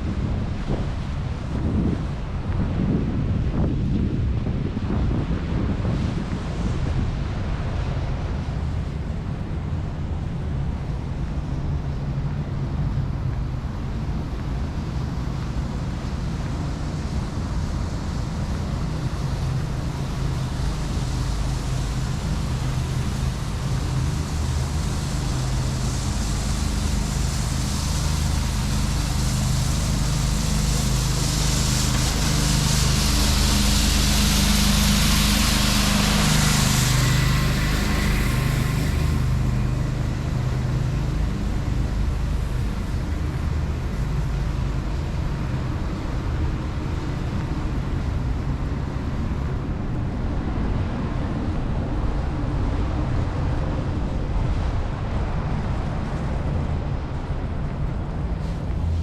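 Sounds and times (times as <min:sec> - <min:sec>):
vehicle engine running: 0:06.6 - 0:59.0
rushing hiss: 0:14.7 - 0:48.6.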